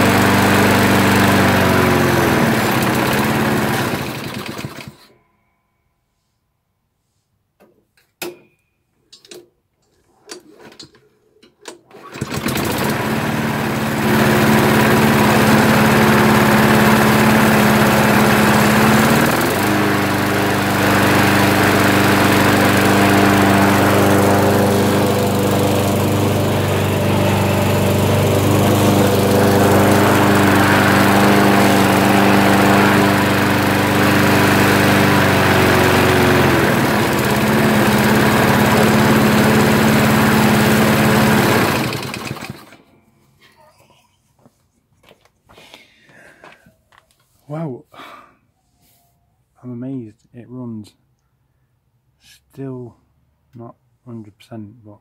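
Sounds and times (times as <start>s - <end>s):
lawnmower engine running: 0.0s - 5.1s, 11.9s - 42.9s
lawnmower pull-start: 0.0s - 5.2s, 9.2s - 43.0s.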